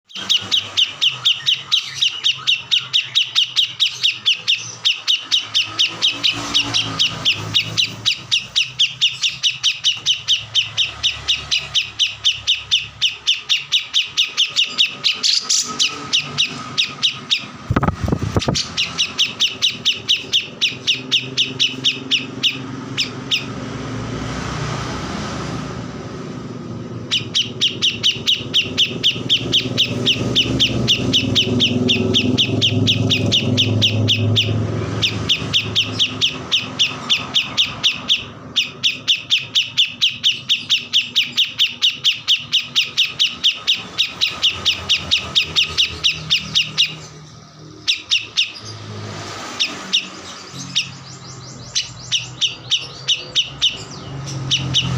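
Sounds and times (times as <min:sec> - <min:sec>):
songbird chirping: 0:00.0 - 0:24.9, 0:26.0 - 0:54.9.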